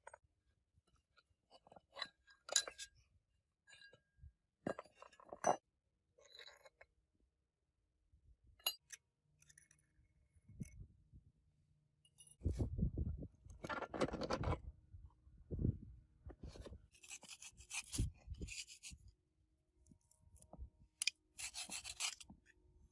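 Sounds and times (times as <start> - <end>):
metal tools clinking and scraping: 1.7 - 3.0, 12.1 - 12.5.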